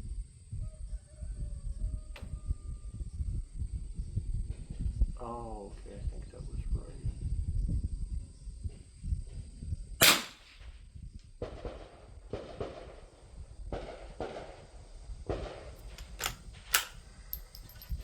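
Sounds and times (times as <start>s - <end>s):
rifle shot: 10.0s - 10.6s, 11.4s - 14.7s, 15.3s - 17.0s
handling sounds: 15.8s - 18.0s
quick clicks: 15.8s - 18.0s.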